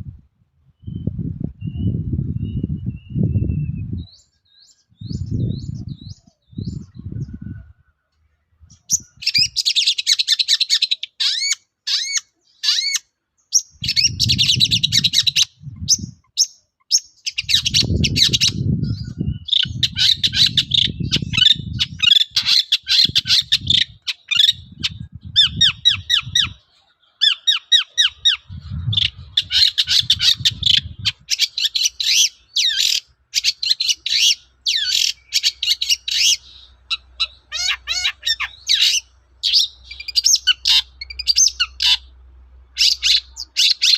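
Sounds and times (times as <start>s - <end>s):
bird singing chattering song: 0.8s - 43.9s
low rumbling noise: 13.7s - 16.2s, 24.6s - 26.7s, 28.2s - 31.3s.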